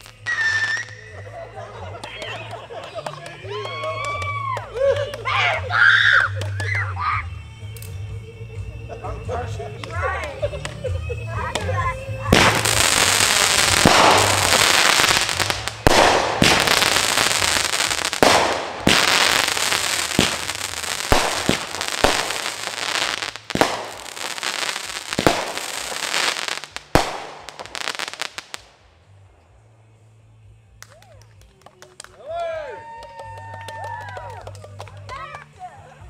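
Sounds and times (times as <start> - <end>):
fireworks crackling and hissing: 0.0 - 8.6, 9.5 - 32.1
fireworks bangs: 11.5 - 28.7.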